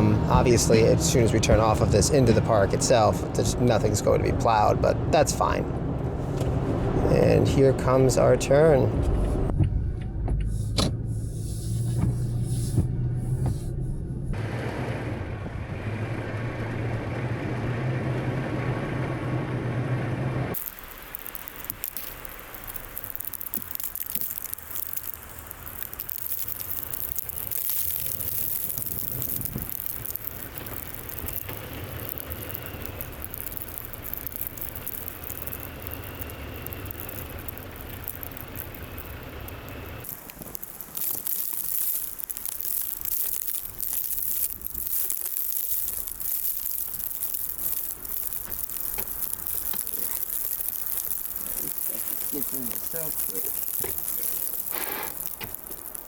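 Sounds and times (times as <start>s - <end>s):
snow crackling: 0.0s - 9.5s, 10.6s - 13.6s, 14.3s - 56.0s
car low rumble: 0.0s - 56.0s
tyres crunching through snow: 20.5s - 56.0s.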